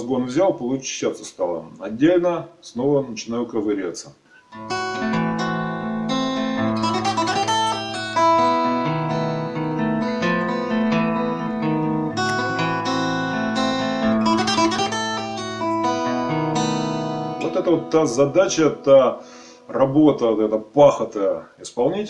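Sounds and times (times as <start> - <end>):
fingerpicked classical guitar: 4.5 - 19.2.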